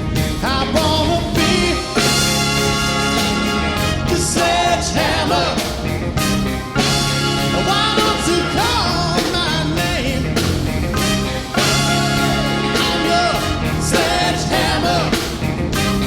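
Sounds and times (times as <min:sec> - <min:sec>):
rock band with horns playing: 0:00.0 - 0:16.0
person singing: 0:00.3 - 0:02.3, 0:07.5 - 0:10.5.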